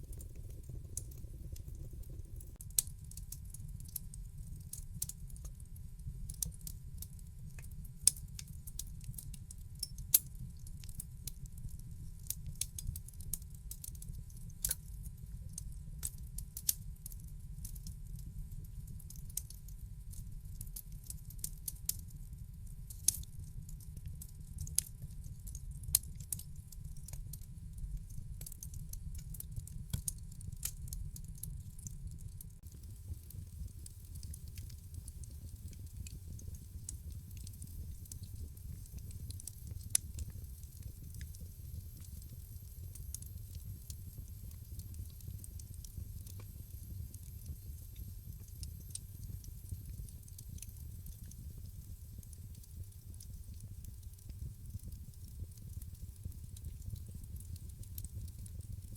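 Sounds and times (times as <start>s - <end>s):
fire popping: 0.0s - 3.3s, 27.9s - 58.9s
wood fire crackling: 0.0s - 9.4s, 23.7s - 58.9s
low rumble of burning fire: 0.0s - 58.9s.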